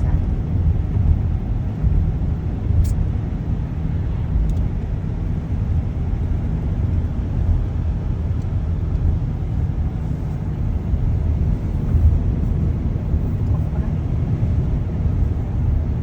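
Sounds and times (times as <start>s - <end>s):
car engine and tyre rumble on snow: 0.0s - 16.0s.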